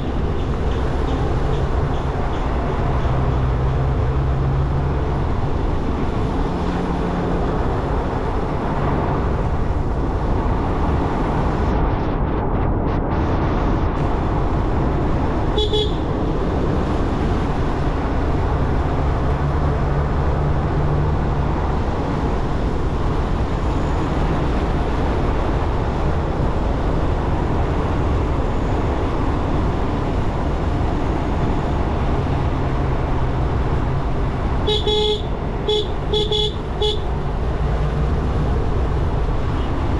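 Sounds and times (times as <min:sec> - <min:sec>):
wind and road noise: 0:00.0 - 0:39.9
vehicle horn toot: 0:15.6 - 0:16.2, 0:34.6 - 0:37.1.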